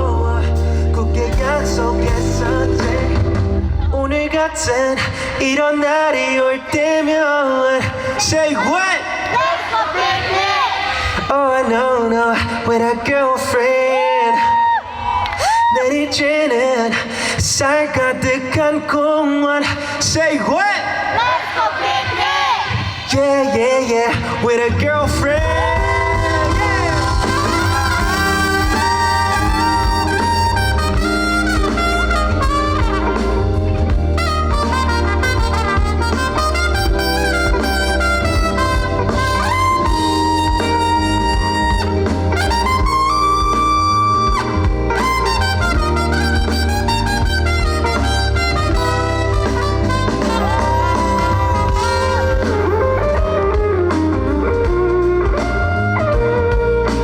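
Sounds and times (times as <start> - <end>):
lead solo with bending notes: 0.0 - 4.8, 24.8 - 57.0
steady bass line: 0.0 - 6.1, 24.2 - 57.0
live band playing pop-rock: 0.0 - 9.3, 22.2 - 57.0.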